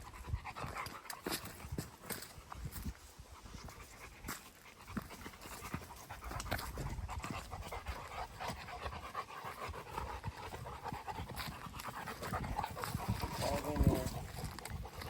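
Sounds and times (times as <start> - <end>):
dog panting: 0.0 - 15.0.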